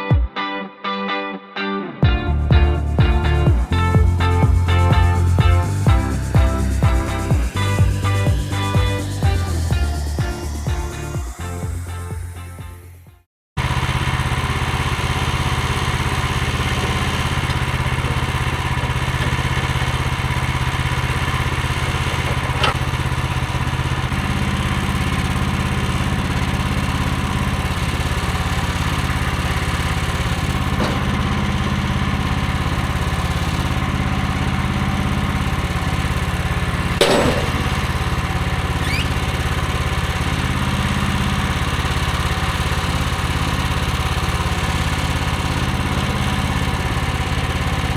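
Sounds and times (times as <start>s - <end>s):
gas engine running: 2.2s - 12.4s, 13.6s - 47.9s
sharp knocks: 37.0s - 37.9s.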